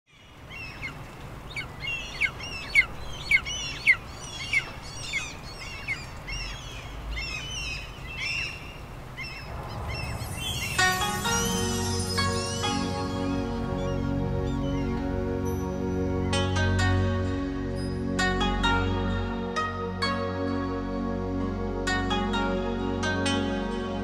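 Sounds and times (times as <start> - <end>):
birds calling: 0.1 - 17.0
low steady rumble: 8.8 - 22.9
music: 9.5 - 24.0.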